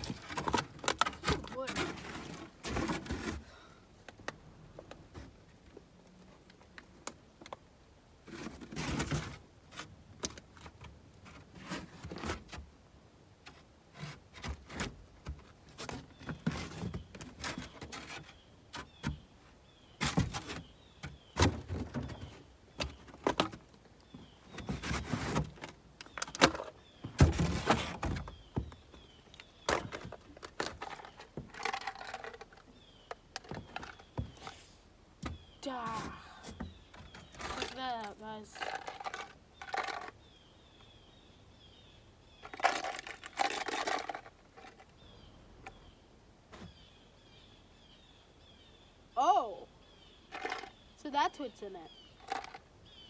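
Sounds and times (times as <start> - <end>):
objects scraping and knocking in truck bed: 0.0 - 3.5, 8.2 - 12.7, 13.5 - 19.3, 19.9 - 40.2.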